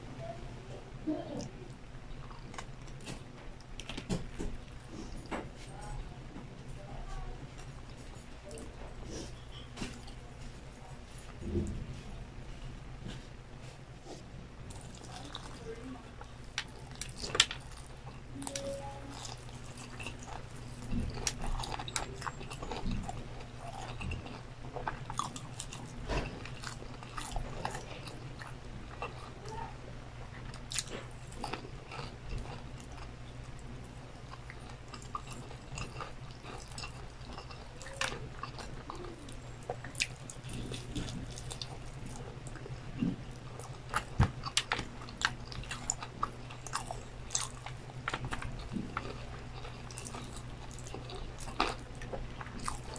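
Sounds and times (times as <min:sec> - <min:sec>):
steady low hum: 0:00.0 - 0:52.9
chewing and biting food: 0:14.0 - 0:29.5, 0:30.2 - 0:52.9.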